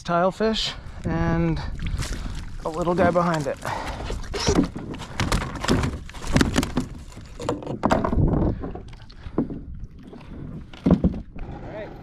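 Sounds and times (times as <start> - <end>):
fish and tackle knocking: 2.0 - 11.4.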